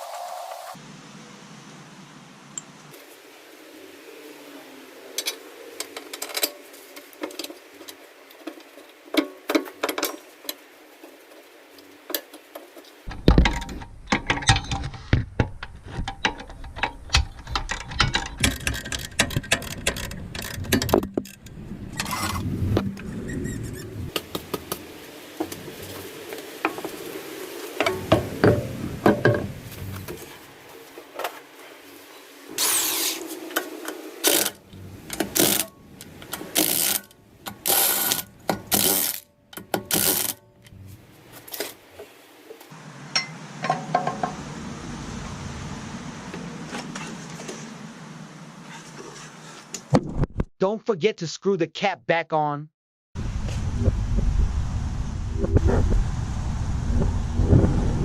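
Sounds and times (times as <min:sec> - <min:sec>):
low rumbling handling noise: 0:13.1 - 0:27.0, 0:27.8 - 0:31.0, 0:32.6 - 0:42.1.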